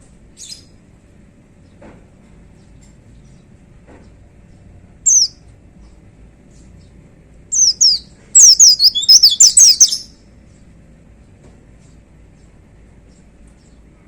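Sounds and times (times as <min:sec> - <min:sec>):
bird singing falling notes: 0:05.1 - 0:05.3, 0:07.5 - 0:10.1.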